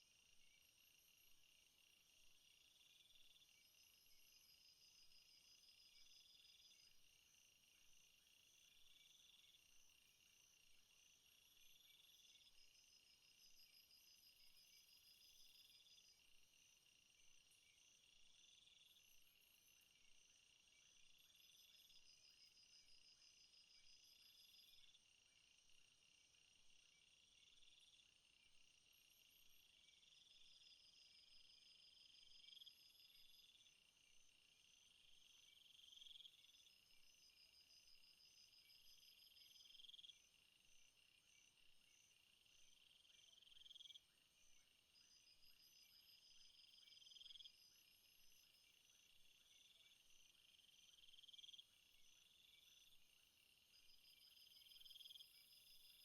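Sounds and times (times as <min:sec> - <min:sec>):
night insects trilling: 0:26.8 - 0:56.0.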